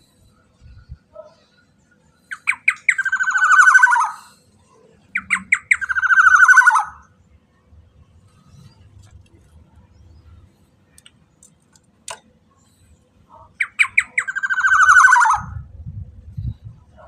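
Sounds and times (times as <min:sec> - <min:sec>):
bird harsh rasping calls: 0:02.3 - 0:04.4, 0:05.1 - 0:07.1, 0:13.3 - 0:15.6.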